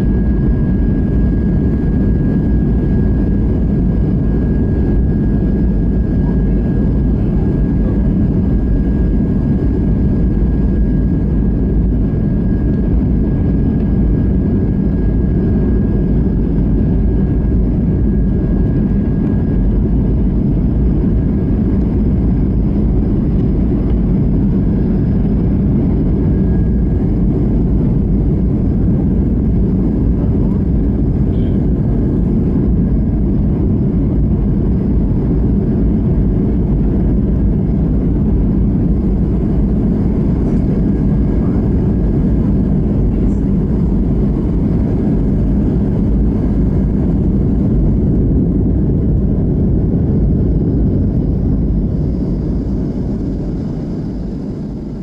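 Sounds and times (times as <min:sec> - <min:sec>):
jet engines and rushing air roar: 0:00.0 - 0:55.0.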